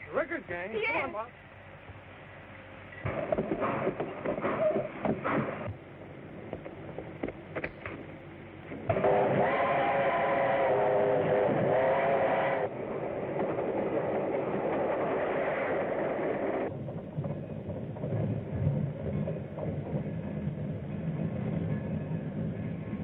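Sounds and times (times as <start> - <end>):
train rumble and clatter: 0.0 - 23.0
steam locomotive whistle: 8.9 - 12.8.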